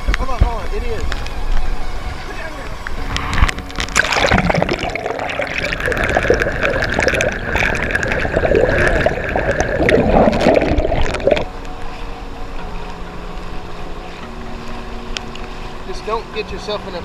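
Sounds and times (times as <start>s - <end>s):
floodwater gurgling and splashing: 2.8s - 15.8s.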